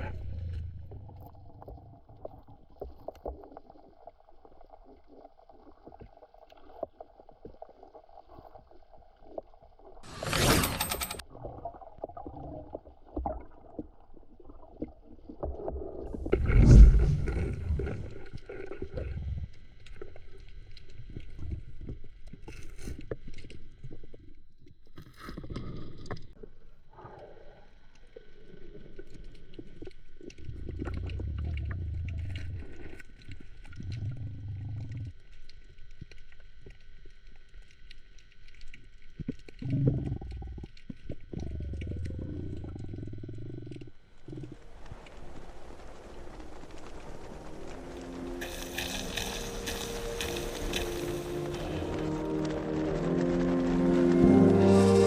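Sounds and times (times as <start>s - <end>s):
underwater bubbling and rumbling: 0.0s - 10.1s, 11.2s - 55.0s
steady high-pitched tone: 47.7s - 55.0s.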